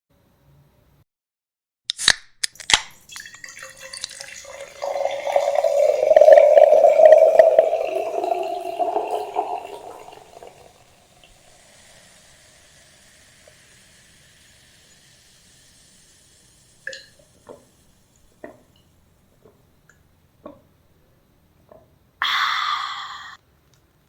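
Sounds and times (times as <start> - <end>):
liquid pouring into container: 3.0 - 14.9.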